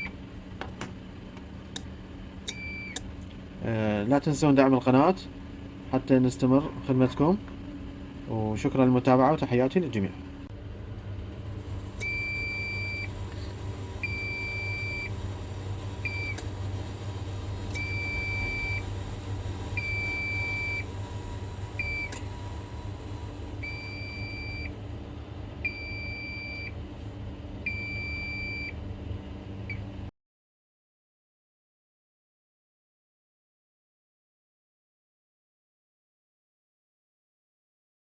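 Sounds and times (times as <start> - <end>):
low electrical hum: 0.0 - 30.1.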